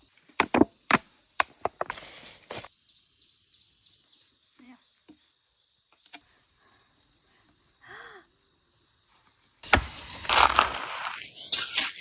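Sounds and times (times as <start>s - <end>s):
high insect buzz: 0.0s - 12.0s.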